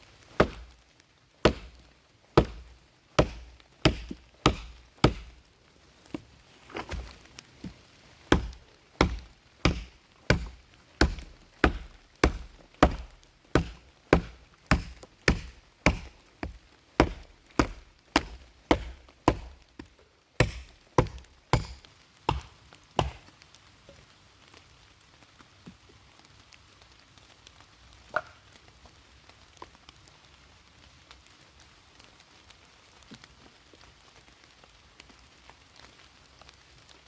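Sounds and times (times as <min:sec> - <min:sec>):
axe chopping wood: 0:00.4 - 0:00.8, 0:01.4 - 0:05.4, 0:06.1 - 0:23.4.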